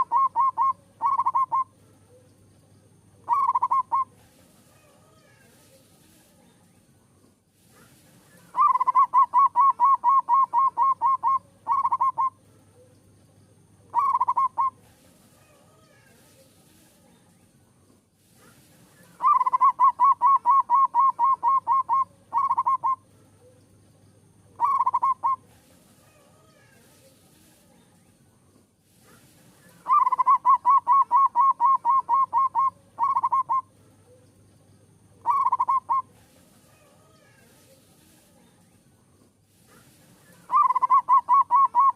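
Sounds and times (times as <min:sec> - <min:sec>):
dove singing repeated notes: 0:00.0 - 0:04.3, 0:08.2 - 0:15.0, 0:18.7 - 0:25.6, 0:29.2 - 0:37.9, 0:39.8 - 0:41.9.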